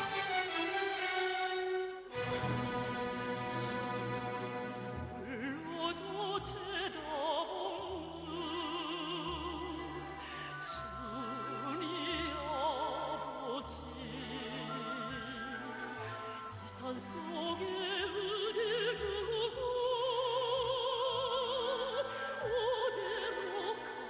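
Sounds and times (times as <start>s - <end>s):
orchestra playing: 0.0s - 6.0s
operatic singing: 0.0s - 24.0s.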